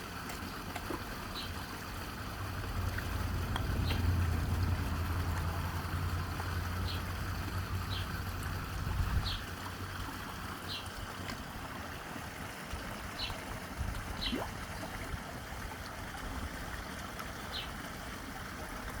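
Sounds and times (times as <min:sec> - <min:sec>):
low hum: 0:02.2 - 0:09.4.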